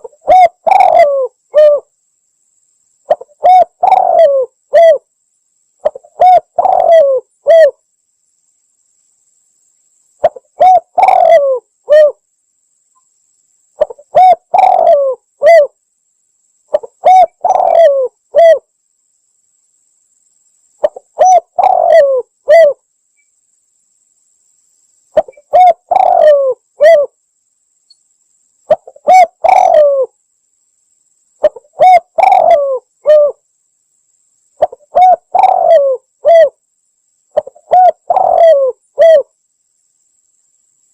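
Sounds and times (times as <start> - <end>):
dove cooing: 0.0 - 1.9, 3.1 - 5.1, 5.8 - 7.8, 10.2 - 12.2, 13.8 - 15.8, 16.7 - 18.6, 20.8 - 22.8, 25.2 - 27.2, 28.7 - 30.1, 31.4 - 33.4, 34.6 - 36.6, 37.4 - 39.3.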